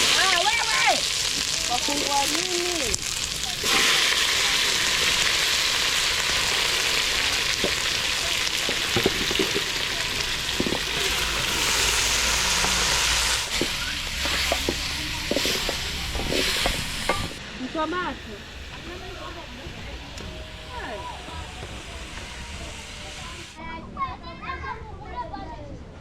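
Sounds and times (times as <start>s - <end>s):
food sizzling in pot: 0.0s - 23.6s.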